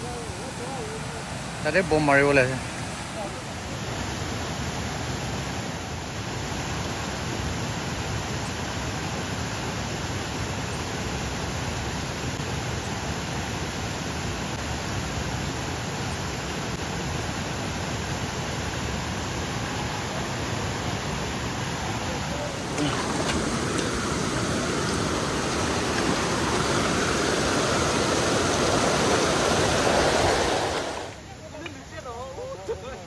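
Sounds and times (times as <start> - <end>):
rushing water: 0.0 - 33.0.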